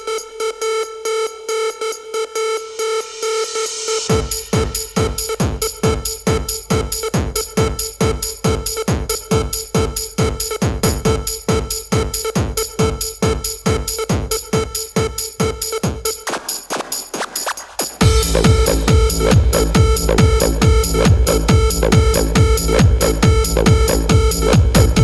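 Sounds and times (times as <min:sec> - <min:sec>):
kick drum pounding: 0:04.1 - 0:16.4, 0:18.0 - 0:25.0.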